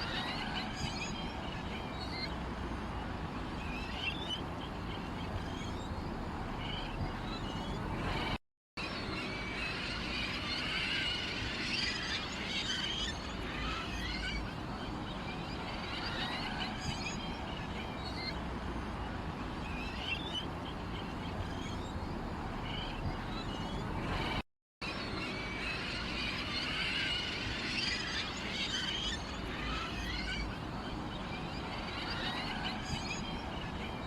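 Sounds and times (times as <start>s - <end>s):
small birds chirping: 0.1s - 8.4s, 11.8s - 24.4s.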